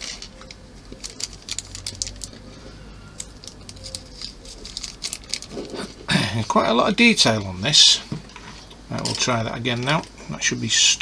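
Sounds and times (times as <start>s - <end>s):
small plastic parts clicking: 0.0s - 2.5s, 3.1s - 5.8s
low steady hum: 0.0s - 11.0s.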